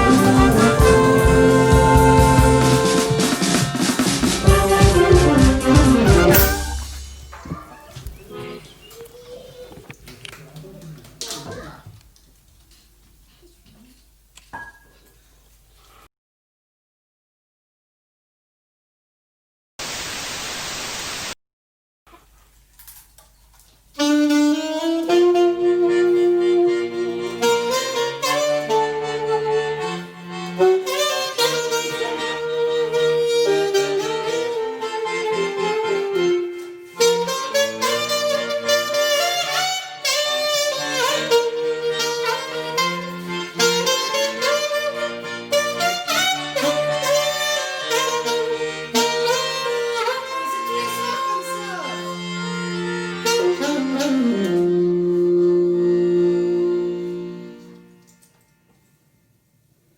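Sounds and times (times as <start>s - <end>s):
low bass line: 0.0s - 3.3s
brass and saxophone band playing: 0.0s - 8.7s, 24.0s - 58.5s.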